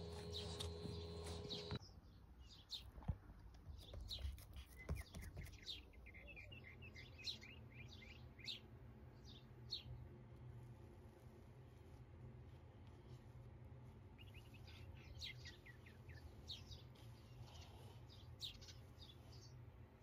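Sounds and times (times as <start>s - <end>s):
small bird chirping: 0.0s - 9.9s, 14.2s - 19.6s.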